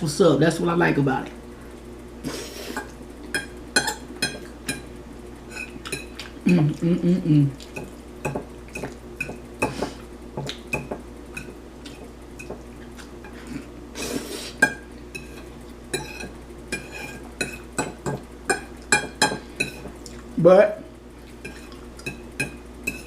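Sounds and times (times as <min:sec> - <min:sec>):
fork scraping a plate: 0:05.5 - 0:06.2, 0:13.2 - 0:17.7, 0:19.6 - 0:19.9, 0:21.4 - 0:23.0.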